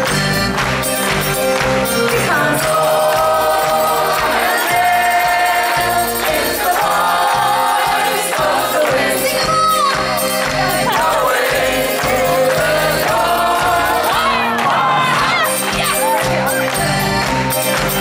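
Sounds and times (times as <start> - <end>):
live band playing: 0.0 - 18.0
voices singing together: 2.0 - 15.4.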